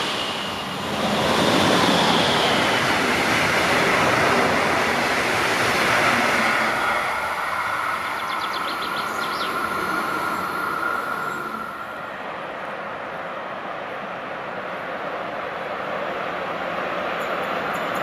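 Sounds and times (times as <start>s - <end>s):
steady high whine: 0.0s - 12.9s
train wheels rushing on rails: 0.0s - 18.0s.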